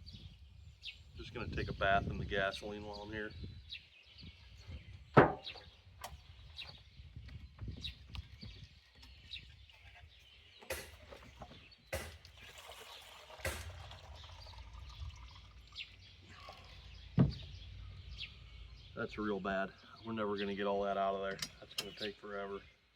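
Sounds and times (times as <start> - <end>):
birds chirping: 0.0 - 22.9
fuel sloshing in tank: 10.6 - 17.9
sharp knock: 10.7 - 11.0, 12.0 - 12.2, 13.5 - 13.8.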